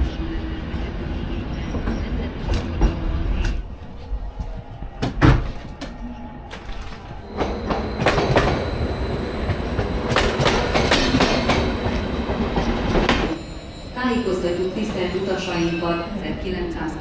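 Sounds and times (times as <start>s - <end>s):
faint high wheel squeal: 10.9s - 16.2s.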